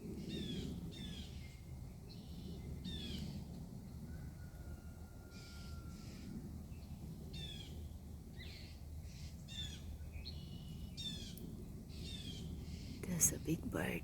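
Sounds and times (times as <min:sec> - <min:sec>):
low background rumble: 0:06.0 - 0:14.0
small songbird calling: 0:08.4 - 0:13.9.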